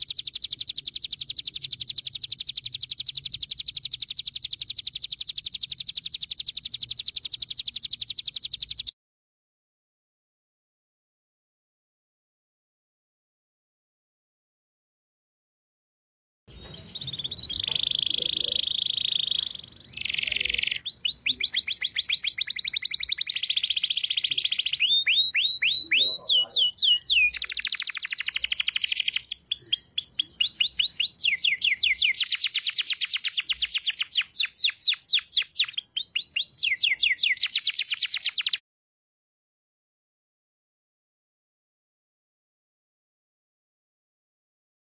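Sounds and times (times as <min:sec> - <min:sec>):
songbird whistling trills: 0:00.0 - 0:08.9, 0:16.5 - 0:38.6.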